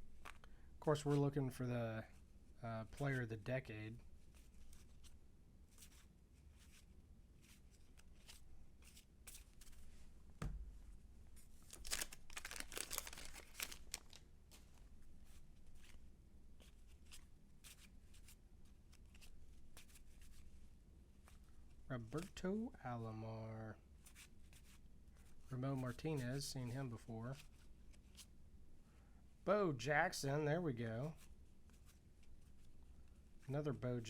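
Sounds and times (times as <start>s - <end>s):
cards rustling: 0.1s - 1.3s, 4.3s - 9.9s, 11.4s - 16.0s, 16.6s - 20.4s
cardboard cards flipped through: 0.2s - 0.5s, 4.4s - 9.9s, 11.4s - 16.0s
low thump: 10.4s - 10.8s.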